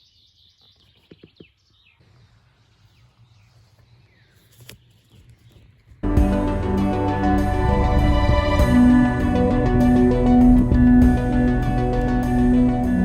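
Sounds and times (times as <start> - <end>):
faint birdsong chirps: 0.0 - 13.0
loud background music: 6.0 - 13.0.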